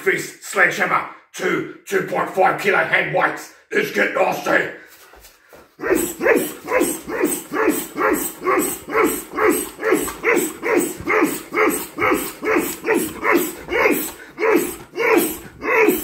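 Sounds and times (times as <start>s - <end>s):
man grunting: 5.8s - 16.0s.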